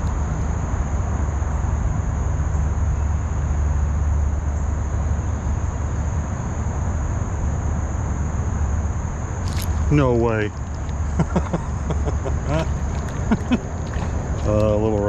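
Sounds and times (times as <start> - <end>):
high-pitched insect drone: 0.0 - 15.0
low rumble: 0.0 - 15.0
creek water rushing: 10.8 - 15.0.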